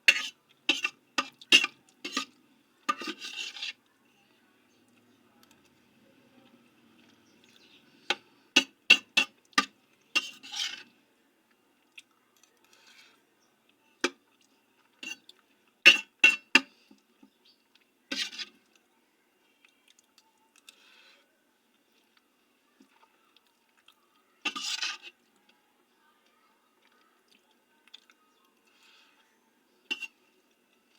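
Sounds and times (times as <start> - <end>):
utensil clinking against a dish: 0.0 - 3.7, 7.5 - 10.8, 15.0 - 16.9, 24.5 - 25.2.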